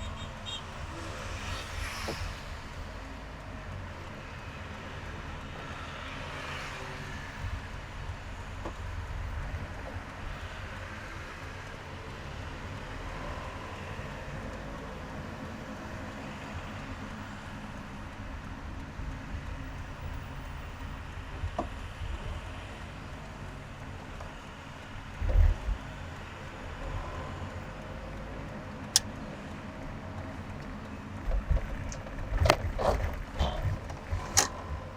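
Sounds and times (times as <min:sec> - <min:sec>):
car engine and road noise: 0:00.0 - 0:34.9
sharp clicks and knocks: 0:28.8 - 0:29.2, 0:30.2 - 0:34.9.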